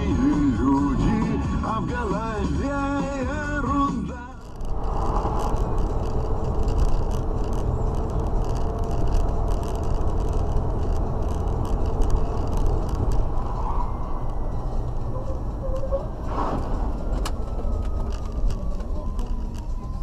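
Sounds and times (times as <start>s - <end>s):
car road and engine noise: 0.0s - 20.0s
faint ticks and rattles: 4.4s - 13.4s.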